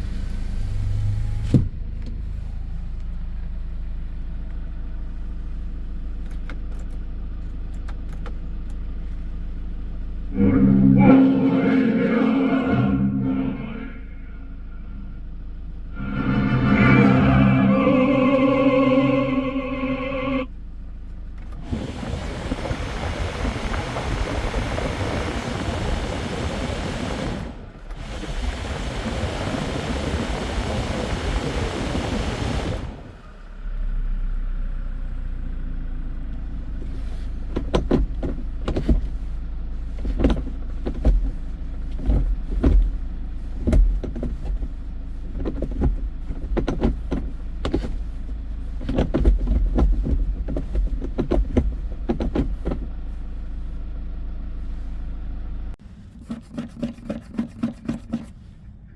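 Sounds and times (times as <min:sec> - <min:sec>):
engine clicks and knocks: 0:06.1 - 0:08.9, 0:36.2 - 0:53.6
truck engine rushing noise: 0:10.4 - 0:15.1, 0:15.9 - 0:20.5, 0:21.5 - 0:33.5.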